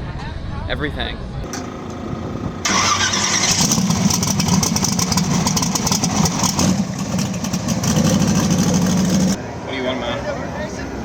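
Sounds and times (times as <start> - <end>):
race car engine running: 1.4 - 9.4.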